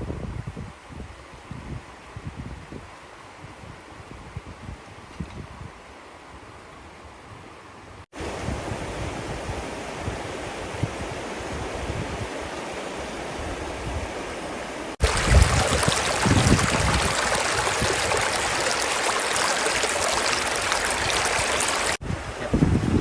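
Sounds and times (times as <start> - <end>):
rushing water: 8.2 - 23.0
wind buffeting microphone: 15.0 - 23.0.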